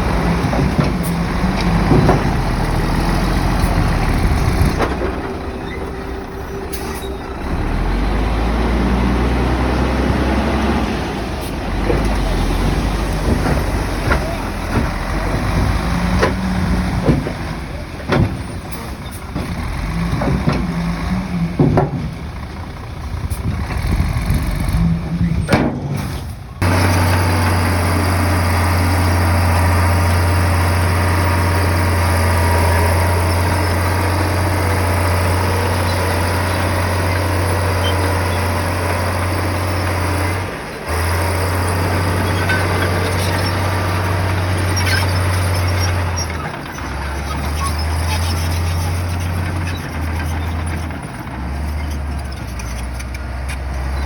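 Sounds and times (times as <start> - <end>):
bulldozer diesel engine working: 0.0 - 54.0
knocks and clanks: 0.1 - 5.5, 11.7 - 22.5, 25.2 - 27.1.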